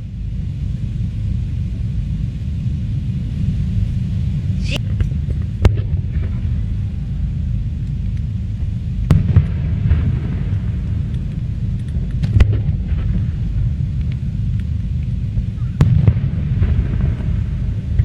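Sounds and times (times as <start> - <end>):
fireworks crackling: 0.0 - 18.0
steady low rumble: 0.0 - 18.0
fireworks bangs: 4.5 - 7.3, 8.6 - 14.0, 15.3 - 18.0.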